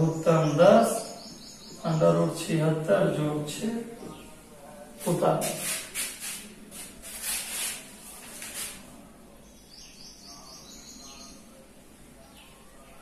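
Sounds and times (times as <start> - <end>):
faint bird chirps: 9.4 - 11.6.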